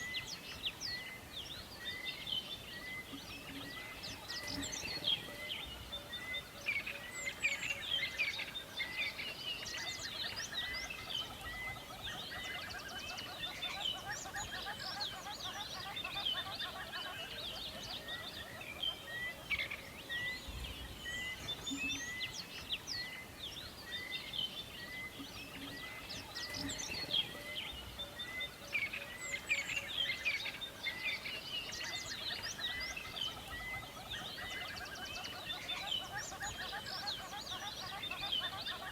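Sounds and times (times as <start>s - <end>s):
wild birds singing: 0.0s - 38.9s.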